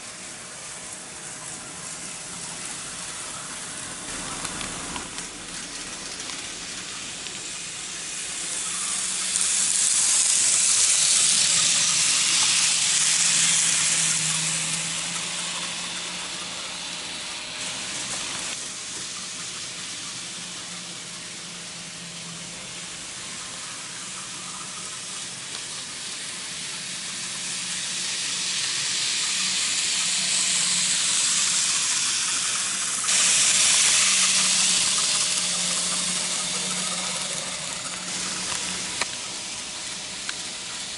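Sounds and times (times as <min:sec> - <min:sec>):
model train wheels hissing on rail: 0:00.0 - 0:40.9
low motor hum: 0:29.2 - 0:40.9.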